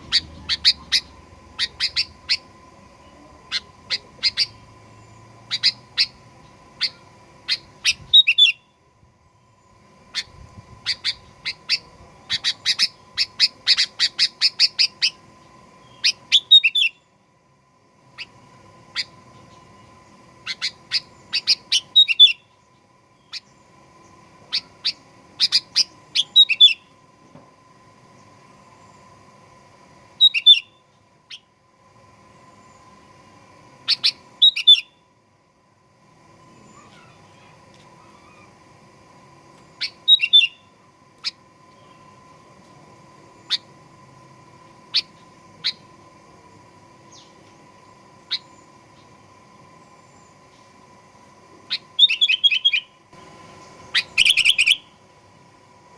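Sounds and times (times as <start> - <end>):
bulbul calling: 0.0 - 8.7, 10.1 - 15.2, 15.8 - 17.0, 20.4 - 22.6, 24.5 - 26.9, 30.2 - 31.5, 33.8 - 35.0, 39.7 - 42.1, 43.3 - 43.8, 44.8 - 45.9, 48.2 - 49.1, 51.7 - 55.0
bird chirping: 0.0 - 8.8, 18.9 - 23.7, 30.2 - 31.4, 33.8 - 35.0, 39.5 - 42.2, 51.7 - 55.0
faint steady hum: 0.0 - 55.9.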